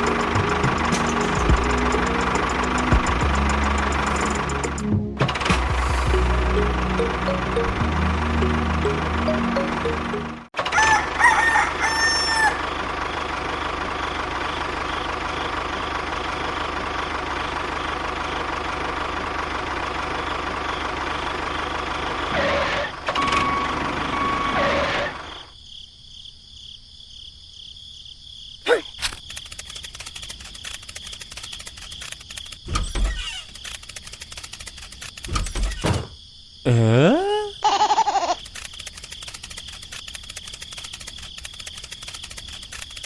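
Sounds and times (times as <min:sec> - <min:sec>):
rooster crowing: 0:10.6 - 0:12.9
rapid clicking: 0:29.0 - 0:32.6, 0:33.5 - 0:35.4, 0:38.4 - 0:43.0.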